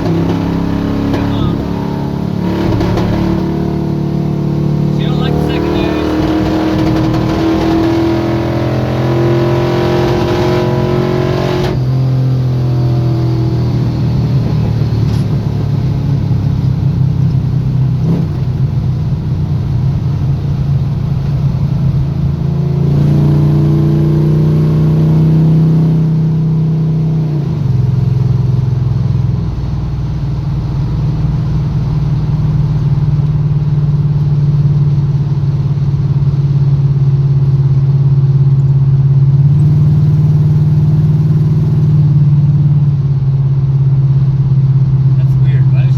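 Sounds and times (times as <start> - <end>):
truck engine running: 0.0 - 11.1, 27.7 - 45.9.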